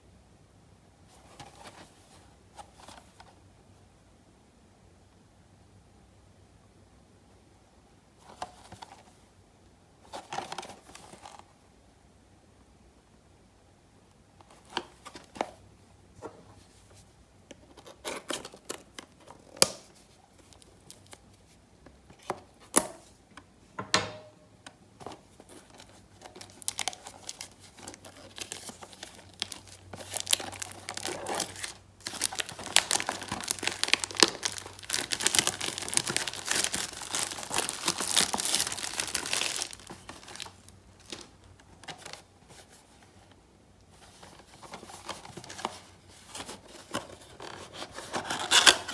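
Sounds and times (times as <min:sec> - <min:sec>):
wrapping torn and crinkled: 0:26.2 - 0:42.2.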